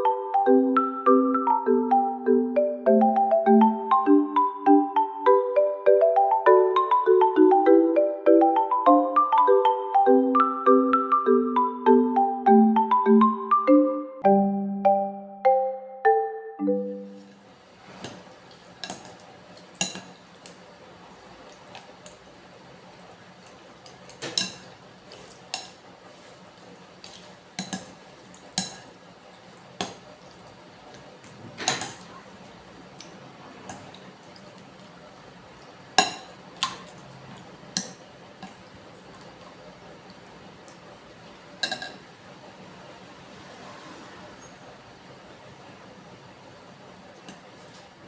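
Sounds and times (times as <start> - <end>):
marimba-like jingle: 0.0 - 17.4
faint steady hiss: 0.0 - 48.0
cutlery clinking against a bowl: 18.8 - 20.3, 24.1 - 25.8, 27.0 - 28.9, 31.6 - 32.2, 36.0 - 38.6, 41.6 - 42.0.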